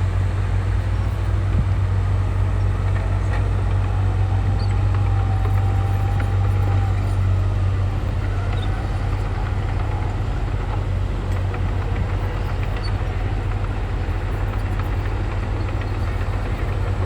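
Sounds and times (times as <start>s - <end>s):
bulldozer diesel engine droning: 0.0s - 17.0s.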